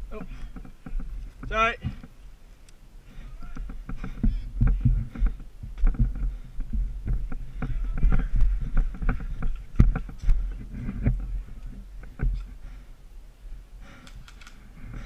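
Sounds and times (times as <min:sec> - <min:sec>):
microphone handling noise: 0:00.0 - 0:02.3, 0:03.1 - 0:12.7
low rumbling wind: 0:00.0 - 0:15.0.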